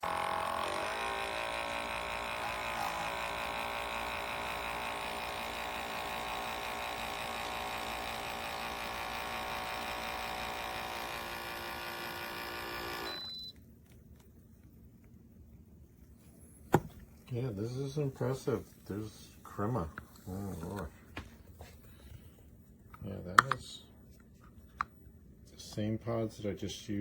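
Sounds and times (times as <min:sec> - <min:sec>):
espresso machine pump running: 0:00.0 - 0:13.5.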